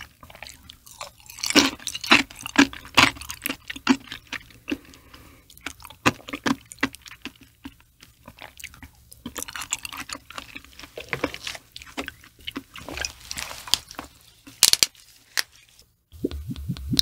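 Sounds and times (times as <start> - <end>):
wet chewing and lip smacks: 0.1 - 13.0.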